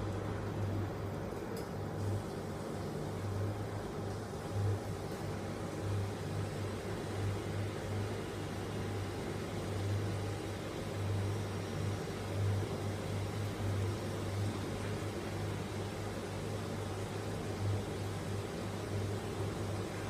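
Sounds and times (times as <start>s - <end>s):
washing machine motor hum: 0.0s - 20.0s.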